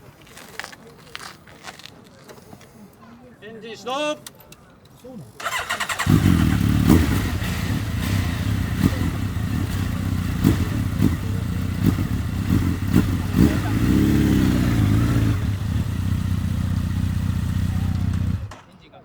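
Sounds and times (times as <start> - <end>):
motorcycle engines idling: 5.4 - 18.7.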